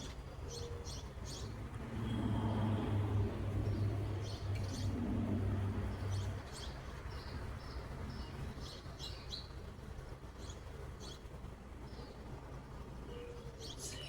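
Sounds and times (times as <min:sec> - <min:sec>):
small birds chirping: 0:10.4 - 0:14.0.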